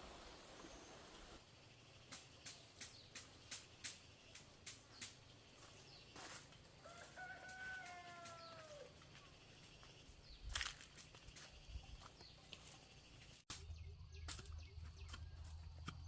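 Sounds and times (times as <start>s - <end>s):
rooster crowing: 6.8s - 8.9s.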